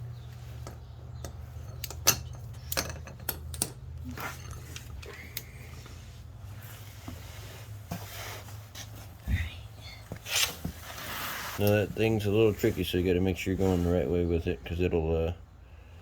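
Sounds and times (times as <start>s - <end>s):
socket wrench clicking on bolts: 0.7s - 4.0s.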